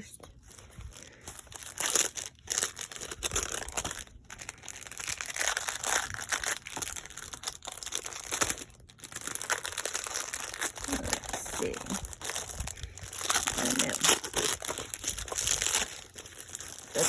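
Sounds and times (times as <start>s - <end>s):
packaging crinkling and rustling: 0.1s - 17.0s
packaging tearing: 1.0s - 17.0s.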